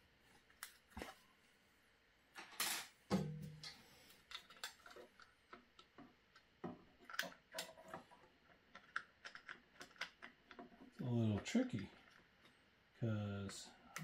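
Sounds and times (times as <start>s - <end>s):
plastic parts clicking: 4.2s - 11.0s.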